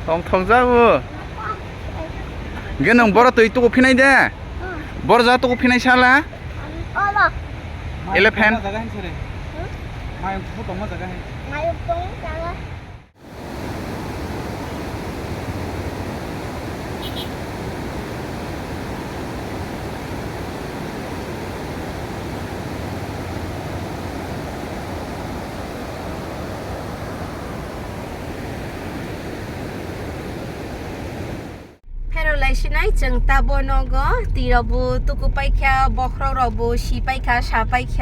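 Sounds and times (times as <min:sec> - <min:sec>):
falling water rushing: 0:13.2 - 0:31.8.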